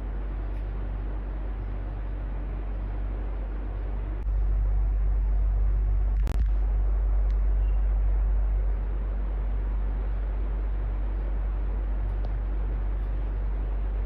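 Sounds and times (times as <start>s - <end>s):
electric fan whirring: 0.0s - 14.0s
fan click: 12.0s - 13.2s.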